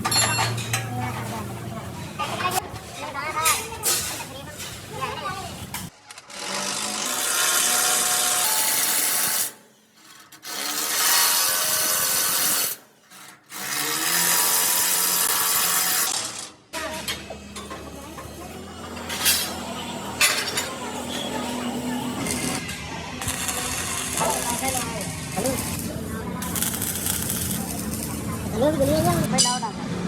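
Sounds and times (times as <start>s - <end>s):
power tool grinding: 6.1s - 16.5s, 18.2s - 29.3s.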